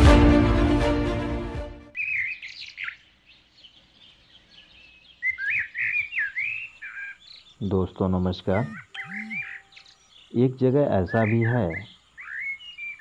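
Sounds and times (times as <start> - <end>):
intro theme music: 0.0 - 1.9
bird chirping: 1.9 - 13.0.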